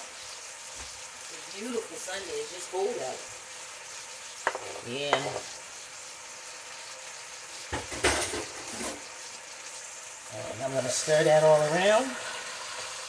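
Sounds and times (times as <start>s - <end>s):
food sizzling in oil: 0.0s - 13.0s
clatter in pot: 4.4s - 5.5s, 7.7s - 9.1s.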